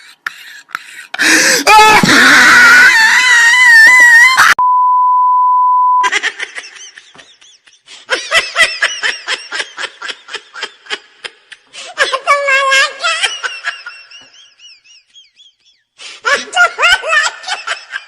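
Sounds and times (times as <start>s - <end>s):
high-pitched laughter: 0.0s - 4.6s, 6.0s - 18.0s
exaggerated crying wail: 1.2s - 4.6s
censor beep: 4.6s - 6.0s.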